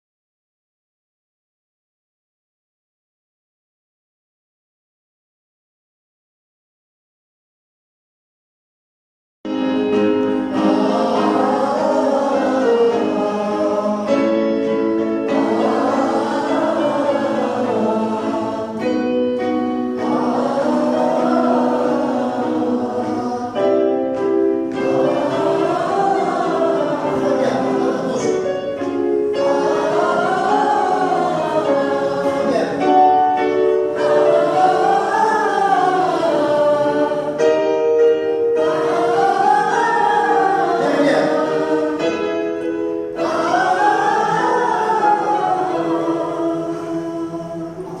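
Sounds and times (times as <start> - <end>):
group of voices singing: 10.4 - 37.8, 38.4 - 48.0.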